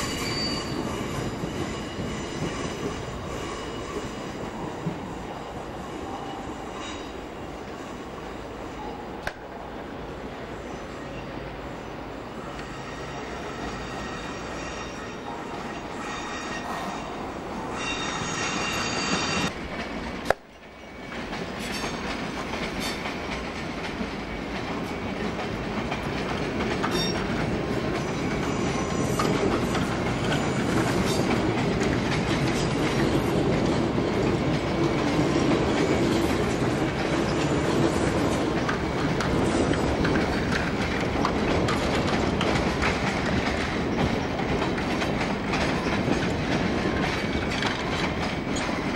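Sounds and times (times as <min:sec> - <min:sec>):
train high-pitched whine: 0:00.0 - 0:09.3, 0:10.4 - 0:19.6
train running noise: 0:00.0 - 0:48.9
wheels clattering over rail joints: 0:29.0 - 0:48.9.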